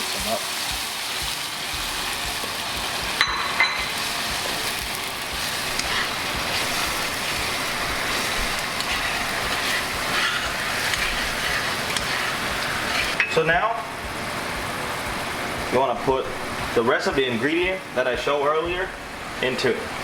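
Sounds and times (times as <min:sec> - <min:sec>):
stirring in a pan: 0:00.0 - 0:13.5
food sizzling in hot oil: 0:00.0 - 0:19.7.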